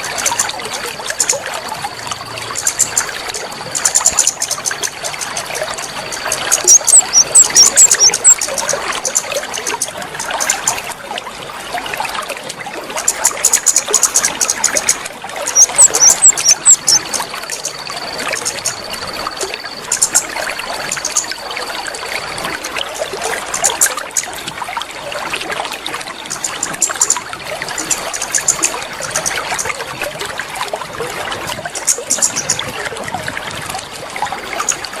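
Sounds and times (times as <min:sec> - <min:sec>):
water trickling: 0:00.0 - 0:35.0
thin high tone: 0:03.0 - 0:08.5, 0:15.5 - 0:22.0
high bird chirps: 0:06.2 - 0:08.6, 0:15.5 - 0:20.2.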